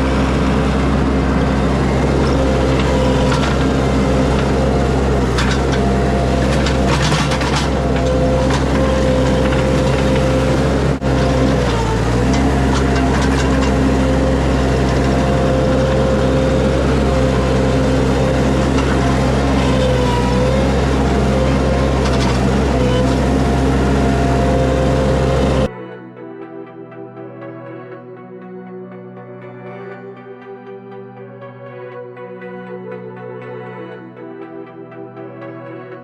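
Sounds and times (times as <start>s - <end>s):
skid steer engine running: 0.0s - 25.7s
clatters: 2.2s - 14.0s.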